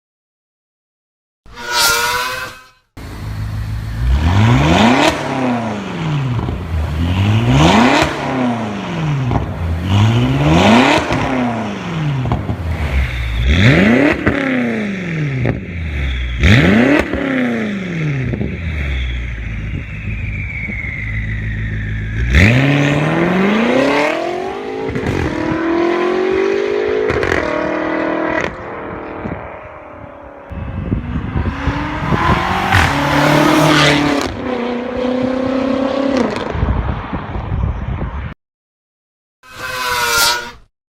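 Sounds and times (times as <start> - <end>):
car engine revving: 1.6 - 36.5
car accelerating through gears: 30.7 - 36.5.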